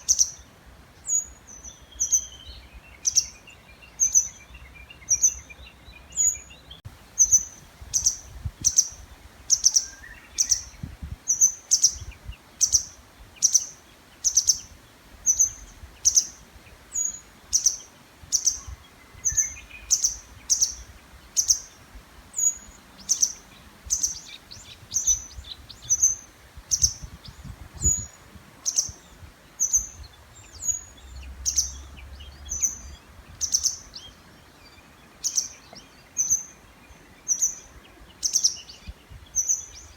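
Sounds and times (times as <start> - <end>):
fainter lower bird call: 0.0 - 39.9
bird calling high-pitched: 7.2 - 14.7.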